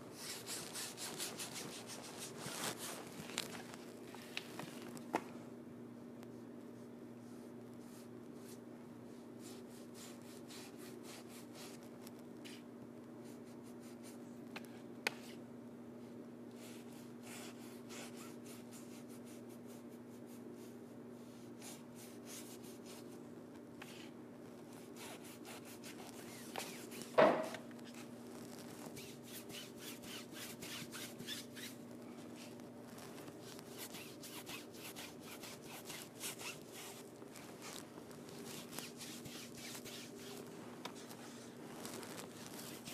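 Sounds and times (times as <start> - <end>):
steady low hum: 0.0 - 42.9
paintbrush scratching on backdrop: 0.2 - 3.0, 24.7 - 27.2, 27.8 - 42.9
knock: 27.2 - 27.6.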